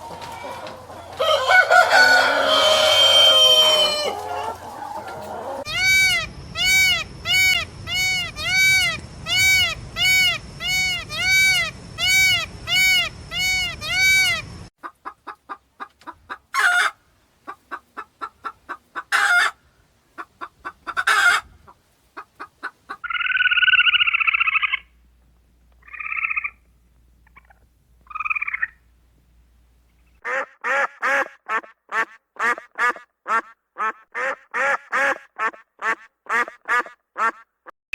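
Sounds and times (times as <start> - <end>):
drawn-out nasal calls: 0.0 - 14.7, 30.2 - 37.4
fowl short repeated calls: 0.0 - 19.6, 20.2 - 24.9, 30.2 - 37.5
duck quacks: 5.4 - 19.6, 30.2 - 37.5.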